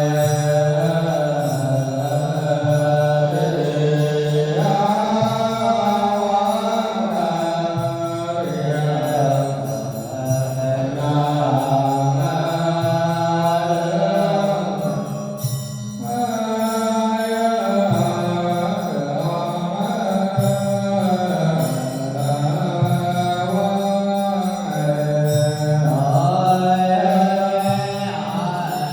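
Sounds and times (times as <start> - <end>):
voices chanting: 0.0 - 22.7.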